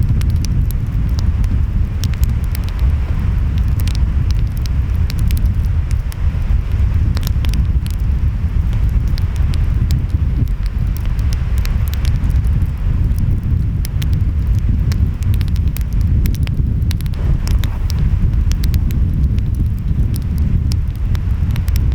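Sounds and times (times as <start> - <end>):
wind: 0.0 - 21.9
wood fire crackling: 0.0 - 21.9
ocean waves rumbling: 17.0 - 21.8.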